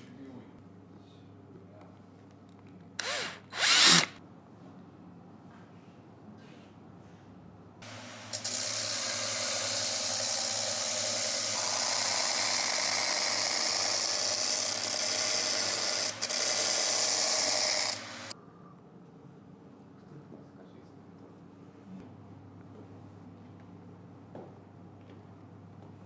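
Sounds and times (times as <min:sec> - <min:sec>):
sanding machine abrading: 0:07.8 - 0:18.4.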